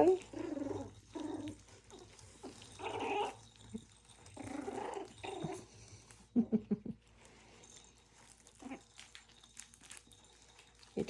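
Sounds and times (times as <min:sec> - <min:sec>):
puppies growling: 0:00.0 - 0:07.3, 0:08.4 - 0:09.2.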